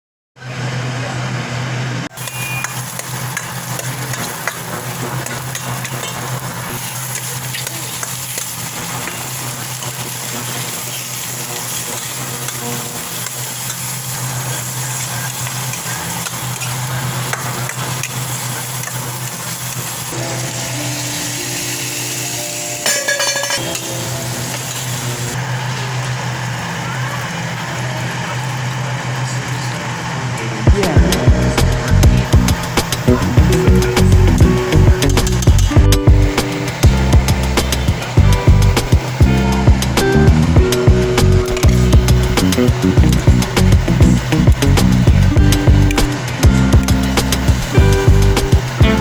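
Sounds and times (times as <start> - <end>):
food sizzling in oil: 2.1 - 30.2, 30.8 - 49.0
stirring scrapes and clicks: 2.2 - 19.9
low hum: 30.7 - 49.0.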